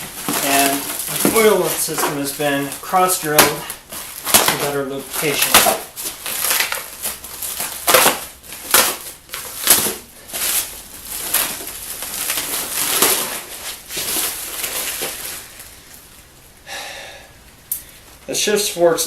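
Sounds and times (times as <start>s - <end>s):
packing material rustling: 0.0s - 16.4s.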